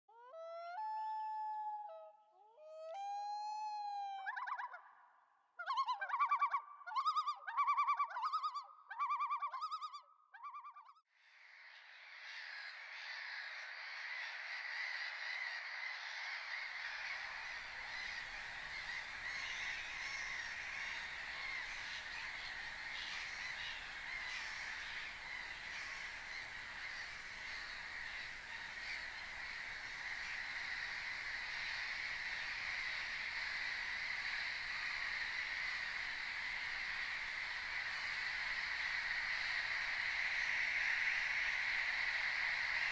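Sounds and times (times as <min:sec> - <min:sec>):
flock of birds gabbling: 0:11.4 - 0:42.9.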